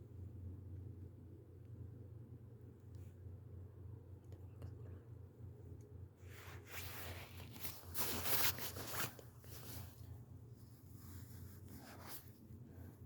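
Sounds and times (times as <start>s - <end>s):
steady low hum: 0.0s - 13.0s
rustling and scuffing: 6.2s - 12.4s.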